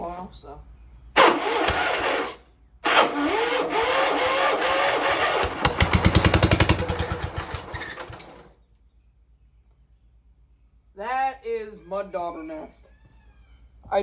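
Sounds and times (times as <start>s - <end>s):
electric starter cranking engine: 1.2s - 8.5s
engine sputtering: 1.2s - 8.5s.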